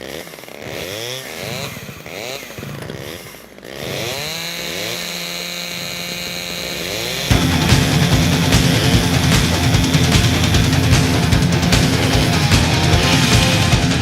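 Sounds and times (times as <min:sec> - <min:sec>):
chainsaw revving: 0:00.0 - 0:14.0
heavy metal band playing: 0:07.3 - 0:14.0.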